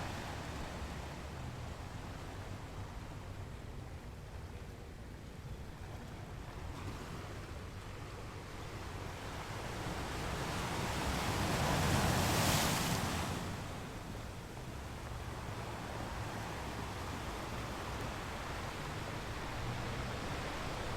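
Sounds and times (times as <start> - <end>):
ocean waves breaking: 8.4 - 20.9.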